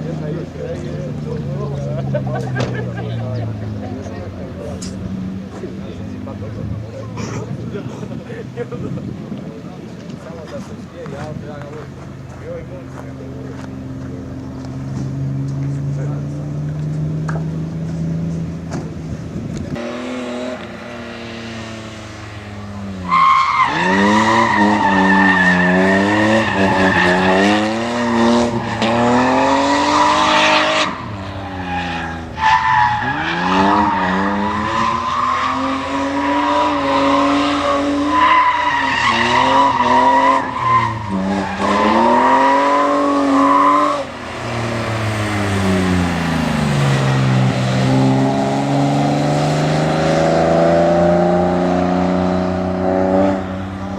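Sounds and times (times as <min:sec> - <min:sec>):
car engine revving: 0:00.0 - 0:53.9
tyres squealing: 0:22.9 - 0:48.9.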